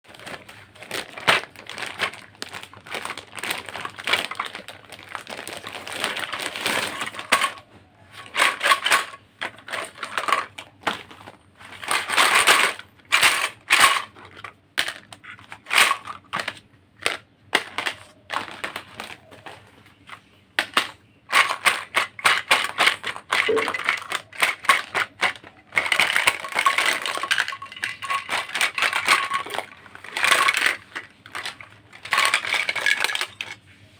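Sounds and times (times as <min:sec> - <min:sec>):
plastic toy pieces clicking: 0:08.2 - 0:11.1, 0:11.7 - 0:19.6, 0:20.6 - 0:33.6.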